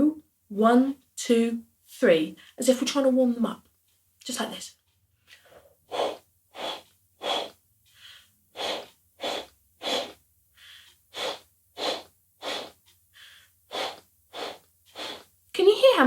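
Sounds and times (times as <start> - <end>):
soft in-breath: 5.2 - 15.3
breath puffs into cupped hands: 5.2 - 15.4.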